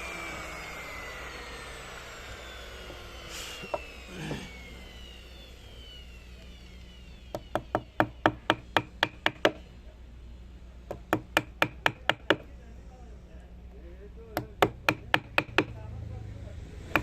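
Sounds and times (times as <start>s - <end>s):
hammer knocking on wood: 7.3s - 9.6s, 10.9s - 12.5s, 14.4s - 15.8s.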